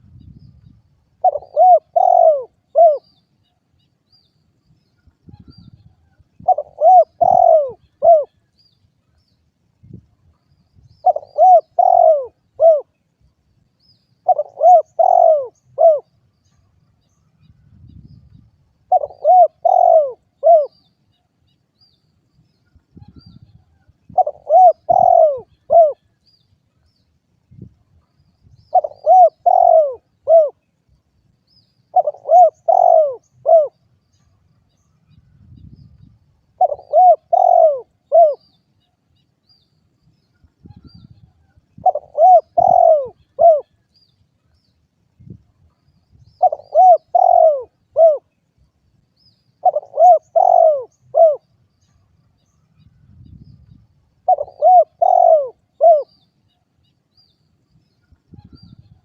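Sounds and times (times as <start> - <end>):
dove cooing: 1.2 - 3.1, 6.4 - 8.4, 11.0 - 13.0, 14.2 - 16.1, 18.9 - 20.8, 24.1 - 26.1, 28.7 - 30.6, 31.9 - 33.8, 36.6 - 38.5, 41.8 - 43.8, 46.3 - 48.4, 49.6 - 51.5, 54.2 - 56.2.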